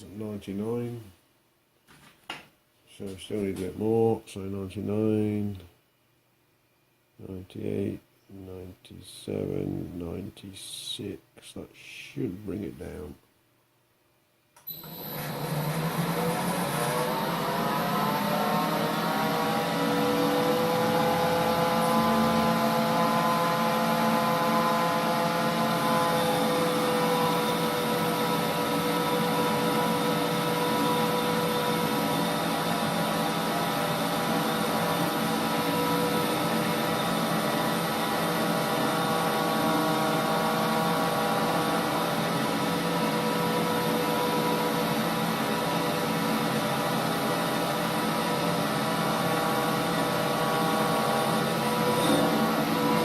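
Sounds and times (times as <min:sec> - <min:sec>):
lathe gear whine: 0:14.7 - 0:53.0.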